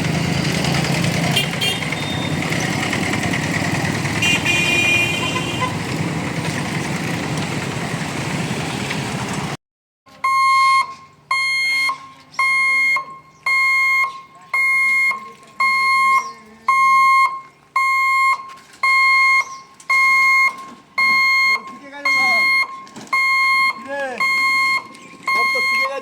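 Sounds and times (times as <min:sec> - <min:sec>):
road traffic noise: 0:00.0 - 0:26.0
level crossing warning beeps: 0:10.2 - 0:26.0.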